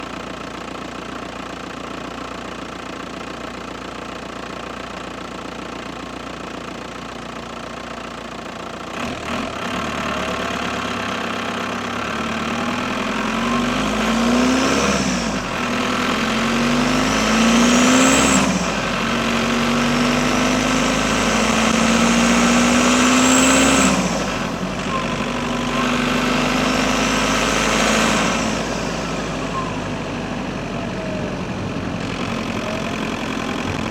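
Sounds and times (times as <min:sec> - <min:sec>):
diesel engine revving: 0:08.8 - 0:33.9.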